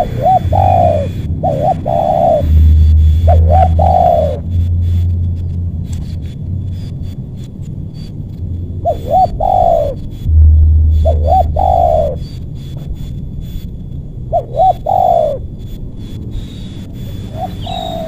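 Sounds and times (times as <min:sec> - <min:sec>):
dove cooing: 0:00.0 - 0:04.5, 0:08.8 - 0:12.4, 0:14.3 - 0:15.5, 0:17.0 - 0:18.0
low rumble: 0:00.0 - 0:07.8, 0:10.0 - 0:14.4.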